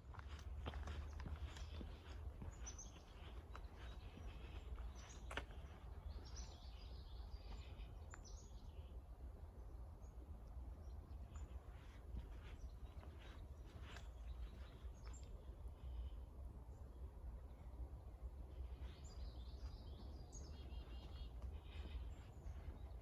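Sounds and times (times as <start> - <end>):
low rumble of wind: 0.0 - 23.0
birds chirping and singing: 18.5 - 23.0.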